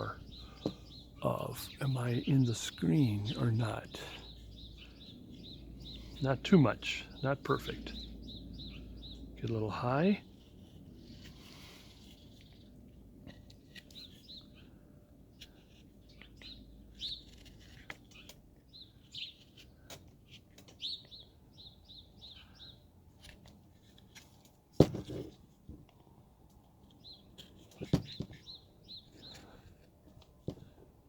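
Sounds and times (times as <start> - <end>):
small bird chirping: 0.0 - 6.4, 7.0 - 9.5, 13.3 - 14.8, 15.4 - 19.9, 20.7 - 22.9.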